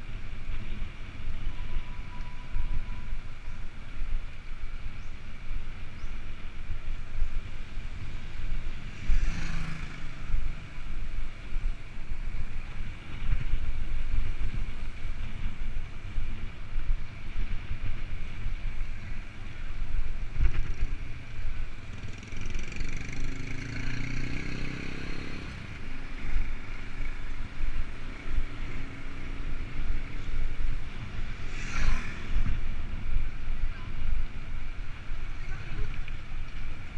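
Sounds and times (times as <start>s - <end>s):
motor vehicle passing: 8.0s - 10.9s, 21.8s - 33.4s
wind buffeting microphone: 25.5s - 36.9s.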